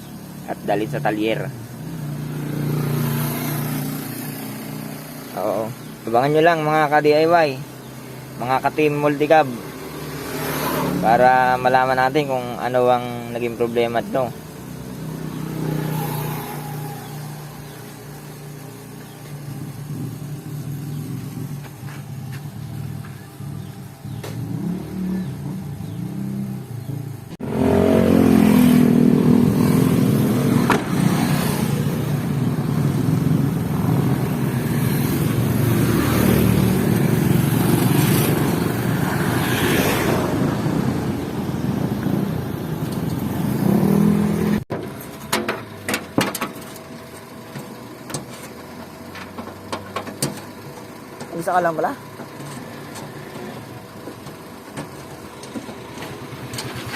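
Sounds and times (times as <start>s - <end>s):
vehicle engine running: 11.0s - 27.6s, 28.2s - 56.9s.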